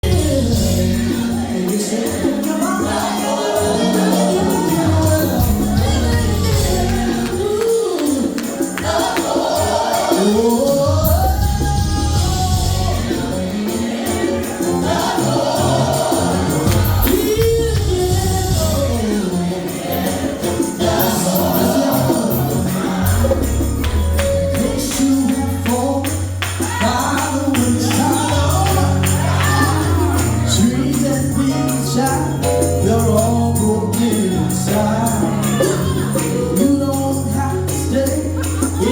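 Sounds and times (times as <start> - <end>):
steady bass line: 0.0 - 1.6, 3.6 - 7.6, 10.9 - 13.6, 14.8 - 19.5, 20.3 - 25.9
jingling percussion: 0.0 - 38.9
voices singing gospel: 0.0 - 38.9.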